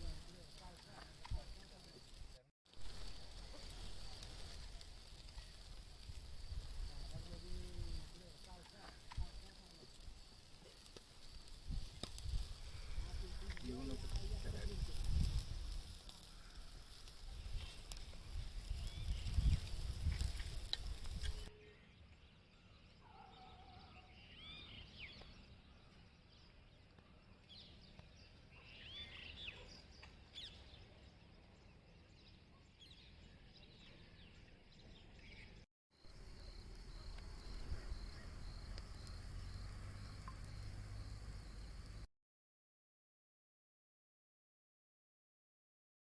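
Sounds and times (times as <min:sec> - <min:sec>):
small birds chirping: 0:00.0 - 0:42.1
pulsing insect trill: 0:36.0 - 0:42.1.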